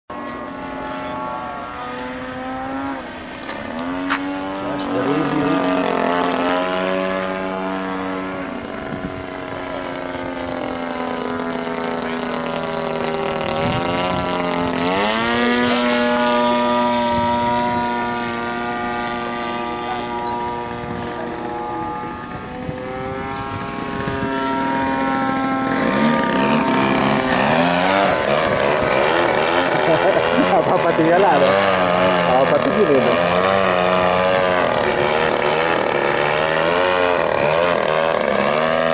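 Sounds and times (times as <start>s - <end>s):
model airplane motor buzzing: 0.1s - 38.9s.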